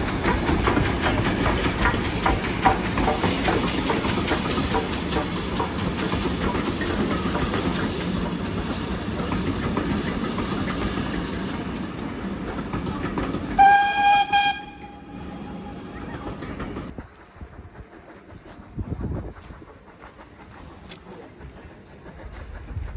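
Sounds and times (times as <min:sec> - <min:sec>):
train rumbling on rails: 0:00.0 - 0:22.9
train whistle blast: 0:13.6 - 0:15.2.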